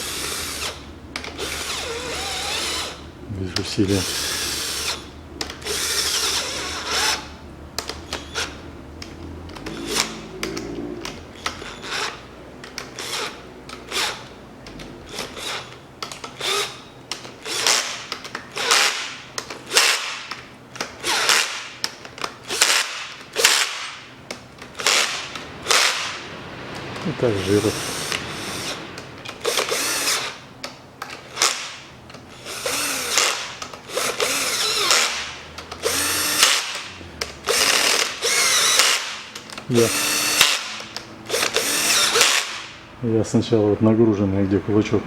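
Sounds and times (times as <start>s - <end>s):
ratchet wrench clicking: 4.0s - 23.9s, 32.4s - 42.7s.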